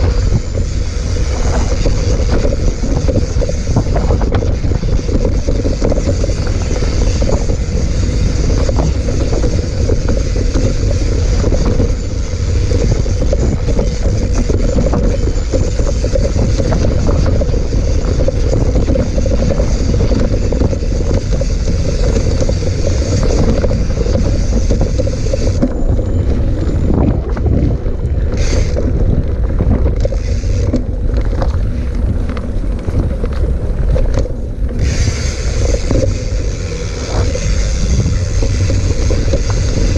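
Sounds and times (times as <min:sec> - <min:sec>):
bike rattling and knocking: 0:00.0 - 0:39.9
tyres on dirt trail: 0:00.0 - 0:39.9
wind on microphone: 0:00.0 - 0:39.9.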